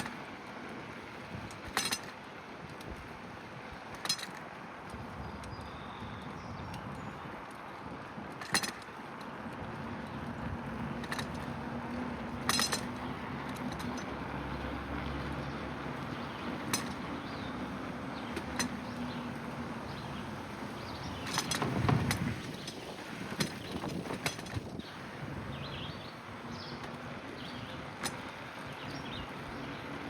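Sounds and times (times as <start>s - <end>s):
bicycle rolling: 0.0s - 30.0s
metallic clinks and rattles: 1.6s - 2.2s, 3.9s - 4.4s, 8.3s - 9.0s, 11.0s - 11.6s, 12.2s - 14.2s, 16.2s - 17.5s, 18.2s - 20.0s, 20.8s - 24.7s.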